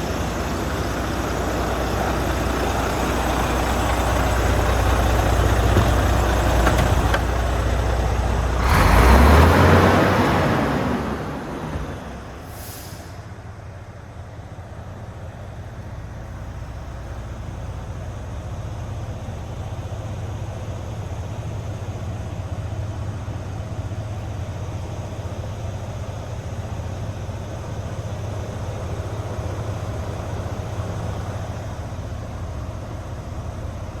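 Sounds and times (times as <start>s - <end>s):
diesel engine idling: 0.0s - 34.0s
air hiss: 12.4s - 13.3s.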